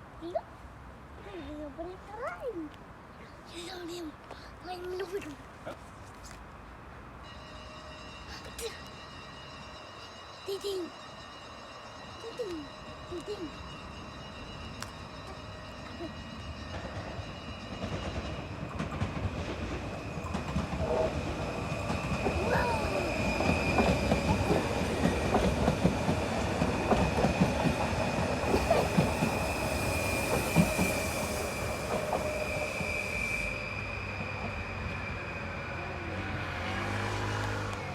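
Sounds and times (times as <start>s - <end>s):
train wheels clacking: 12.3s - 34.8s
steady high-pitched tone: 19.8s - 36.5s.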